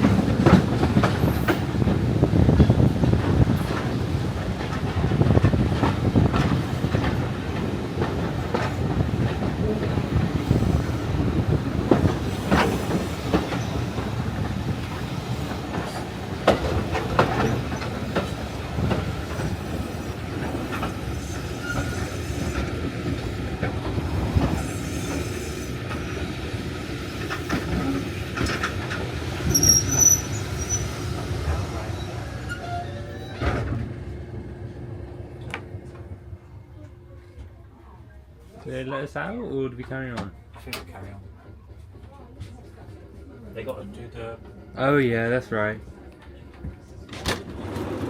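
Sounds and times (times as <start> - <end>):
train wheels rumbling on rails: 0.0 - 37.6, 39.7 - 48.0
wheel squeal: 21.1 - 22.7, 29.4 - 31.1.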